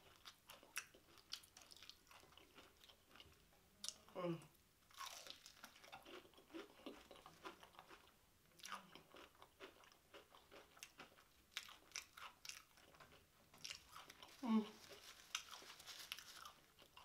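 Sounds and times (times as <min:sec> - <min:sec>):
crisp crunches of chewing: 0:04.9 - 0:17.0.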